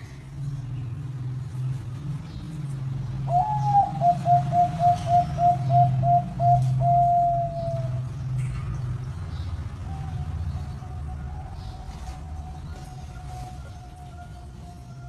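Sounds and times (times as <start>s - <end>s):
dove cooing: 3.3s - 8.1s.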